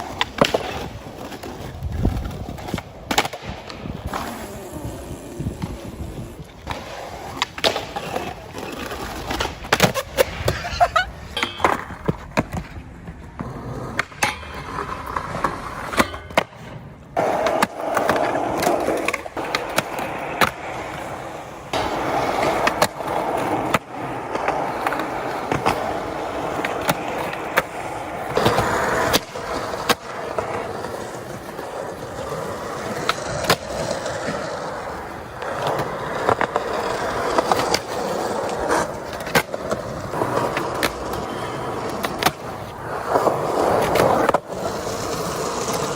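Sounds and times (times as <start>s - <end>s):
skateboard clacking and landing: 0.0s - 45.9s
skateboard wheels rolling on pavement: 0.0s - 45.9s.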